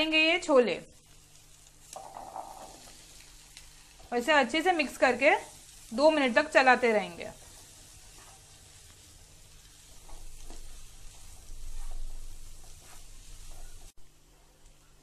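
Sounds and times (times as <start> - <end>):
food sizzling in oil in a frying pan: 0.0 - 14.0
spatula stirring in a pan: 4.9 - 14.0.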